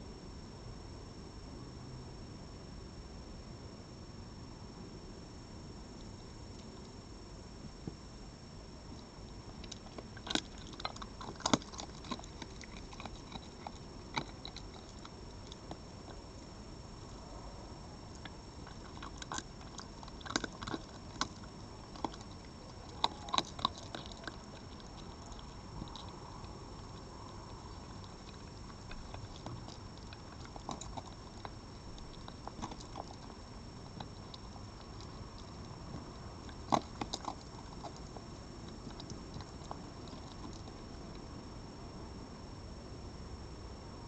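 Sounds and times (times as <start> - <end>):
faint high whine: 0.0 - 44.0
animal chewing and crunching: 5.9 - 8.0, 8.8 - 41.6.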